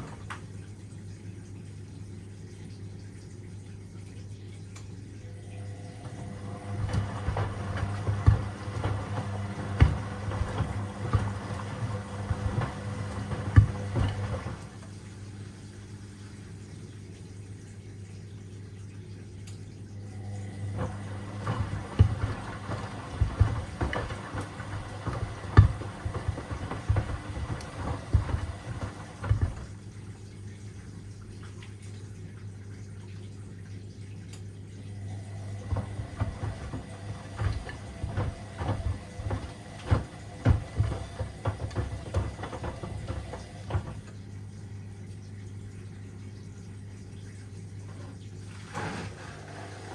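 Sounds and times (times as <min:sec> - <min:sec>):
washing machine motor hum: 0:00.0 - 0:49.9
shoes tumbling in drum: 0:20.8 - 0:29.7, 0:35.6 - 0:44.1.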